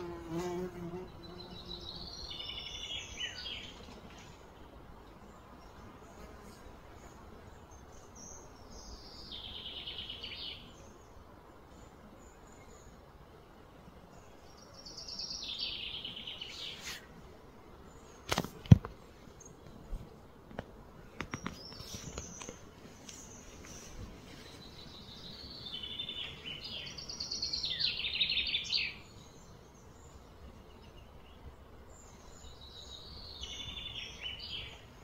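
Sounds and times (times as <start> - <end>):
bird singing trilled phrases: 24.7 - 31.4.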